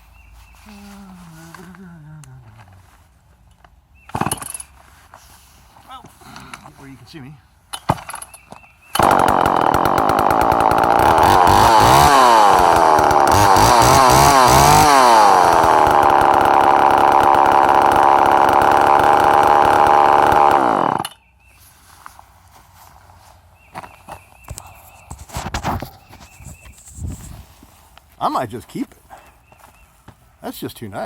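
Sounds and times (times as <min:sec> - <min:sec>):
chainsaw running: 0:09.0 - 0:21.1.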